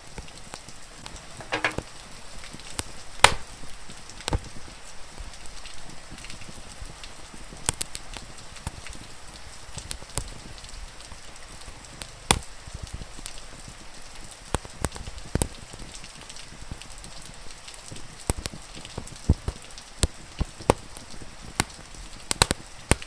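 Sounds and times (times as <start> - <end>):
rain hissing: 0.0 - 23.0
wood fire crackling: 0.0 - 23.0
sharp pops from fire: 1.1 - 1.9, 2.7 - 4.5, 7.6 - 8.8, 12.0 - 12.5, 18.3 - 23.0.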